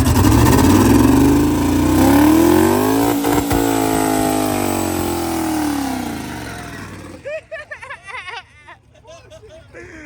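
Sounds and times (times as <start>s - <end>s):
car engine revving: 0.0s - 7.3s.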